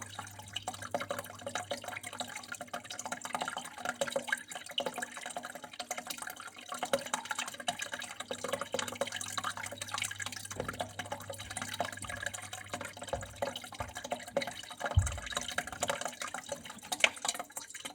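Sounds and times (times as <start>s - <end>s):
water trickling and dripping: 0.0s - 17.9s
low thuds: 15.0s - 15.5s.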